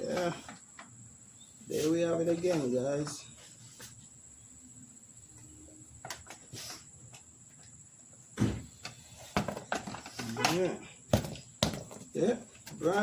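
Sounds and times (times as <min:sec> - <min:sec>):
thud: 0:08.4 - 0:08.7.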